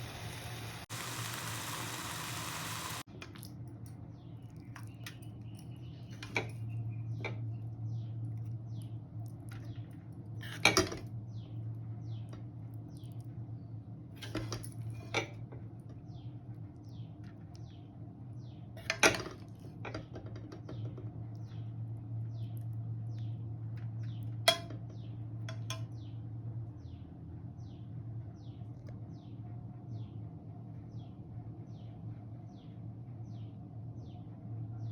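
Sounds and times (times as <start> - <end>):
steady low hum: 0.0 - 3.1.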